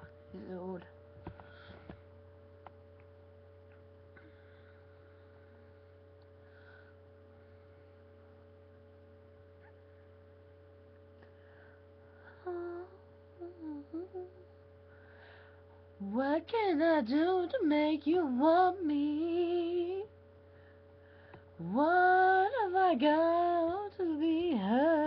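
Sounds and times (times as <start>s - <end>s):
low electrical hum: 0.0s - 25.0s
person humming a note: 12.4s - 14.6s.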